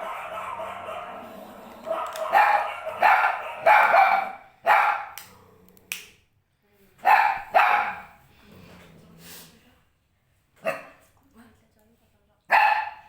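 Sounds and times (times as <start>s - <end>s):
puppy barking: 0.0s - 1.3s, 1.9s - 5.2s, 7.0s - 8.2s, 10.6s - 11.0s, 12.5s - 13.0s.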